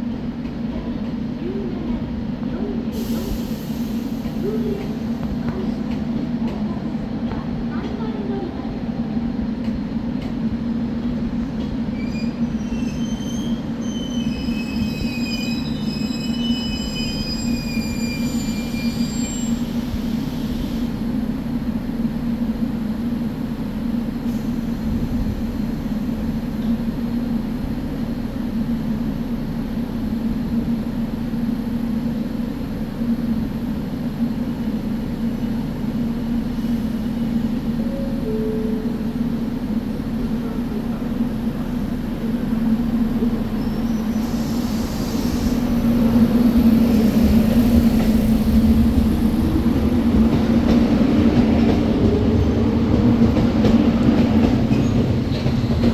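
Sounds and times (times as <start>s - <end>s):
electric train rumbling: 0.0s - 55.9s
train wheels squealing: 11.9s - 20.9s, 43.5s - 45.8s, 54.4s - 55.5s.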